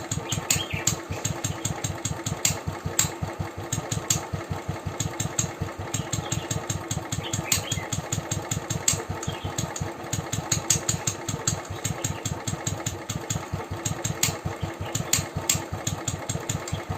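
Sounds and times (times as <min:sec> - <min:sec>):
engine ticking: 0:00.0 - 0:16.9
motorcycle engine idling: 0:00.0 - 0:16.9.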